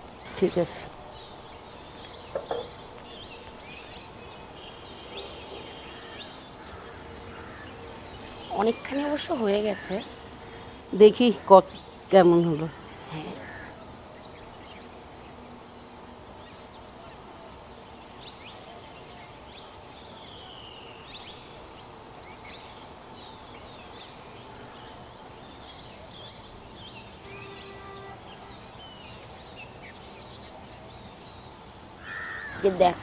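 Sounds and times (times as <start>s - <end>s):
birds chirping: 0.0s - 33.0s
outdoor background hum: 0.0s - 33.0s.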